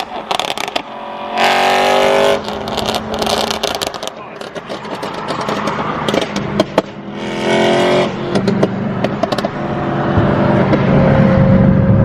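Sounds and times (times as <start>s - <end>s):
exhaust pops and crackles: 0.0s - 0.9s, 2.4s - 7.0s, 8.3s - 9.6s
car engine running: 0.0s - 12.0s.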